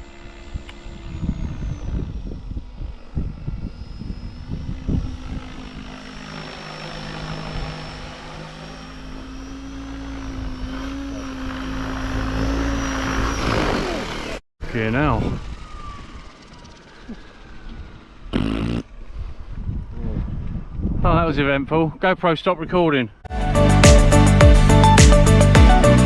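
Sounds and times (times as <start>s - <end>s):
rc helicopter rotor whine: 0.0s - 19.9s.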